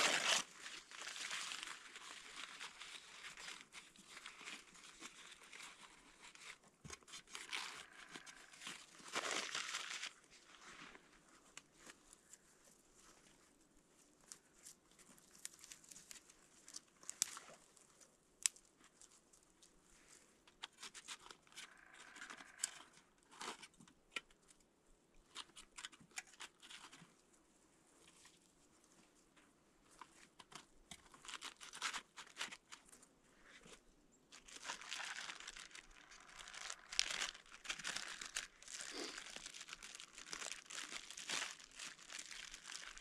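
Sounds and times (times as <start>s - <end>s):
crinkling and rustling: 0.0s - 24.6s, 25.2s - 27.2s, 28.0s - 43.0s.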